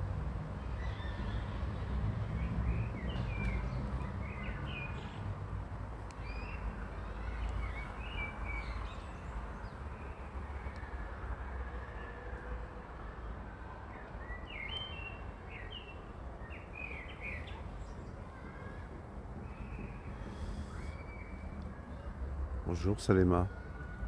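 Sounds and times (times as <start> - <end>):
small birds chirping: 0.6 - 5.3, 6.0 - 11.0, 13.9 - 22.2.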